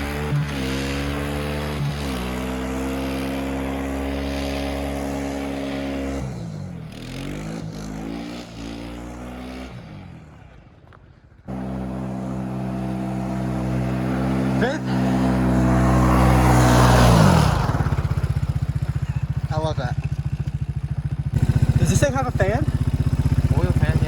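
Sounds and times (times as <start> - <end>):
vehicle engine running: 11.5 - 24.0.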